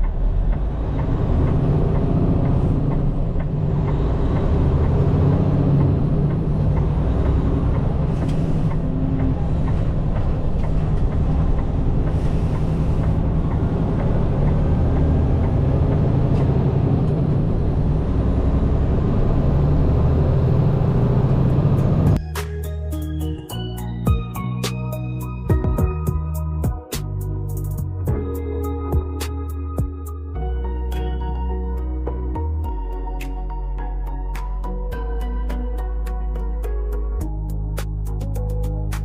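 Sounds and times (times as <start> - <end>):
truck diesel engine running: 0.0 - 22.2.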